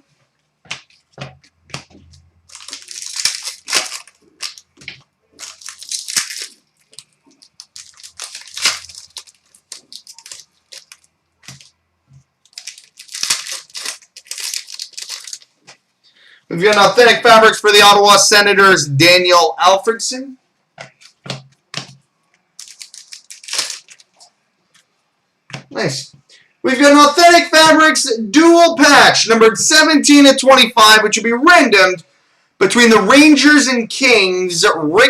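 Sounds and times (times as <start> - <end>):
cards rustling in plastic sleeves: 0.7 - 15.9, 16.6 - 18.0, 20.8 - 24.9.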